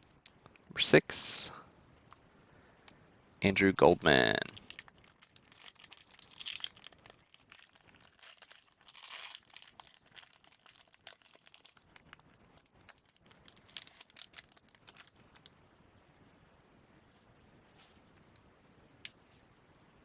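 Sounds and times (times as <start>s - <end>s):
wrapper tearing and crinkling: 4.1s - 15.5s.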